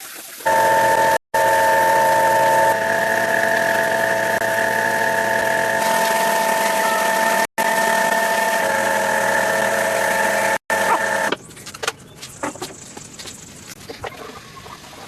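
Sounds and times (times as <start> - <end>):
power tool motor whining: 0.5 - 11.3.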